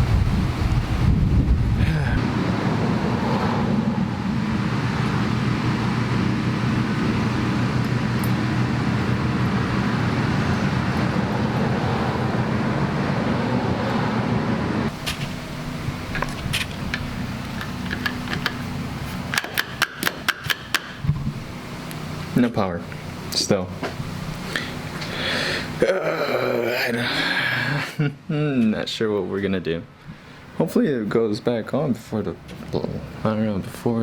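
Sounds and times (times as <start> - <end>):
engine running: 0.0 - 25.8
wash of noise: 1.8 - 16.0
sharp clicks and knocks: 16.1 - 18.7, 19.3 - 21.4.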